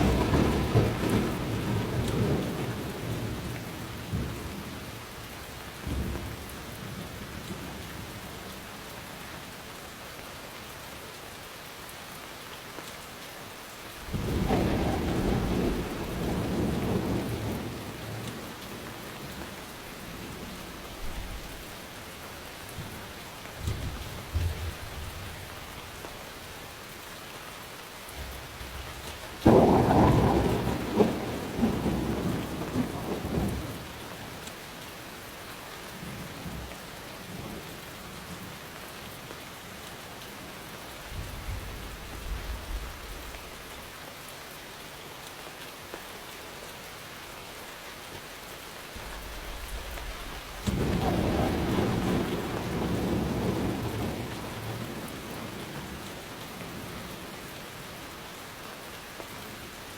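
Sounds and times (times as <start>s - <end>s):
thunder crack: 0.0s - 3.4s, 14.1s - 18.2s, 29.4s - 33.8s, 49.0s - 56.0s
rolling thunder: 0.0s - 4.8s, 14.0s - 21.8s, 28.2s - 34.2s, 41.1s - 43.5s, 49.0s - 57.4s
steady rain: 0.0s - 59.9s.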